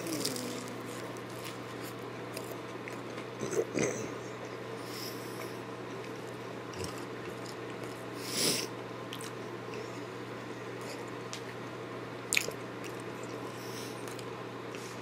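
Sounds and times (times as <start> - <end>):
person chewing crispy food: 0.0 - 3.9, 5.8 - 8.1, 9.1 - 9.9, 12.3 - 14.9
steady low hum: 0.0 - 15.0.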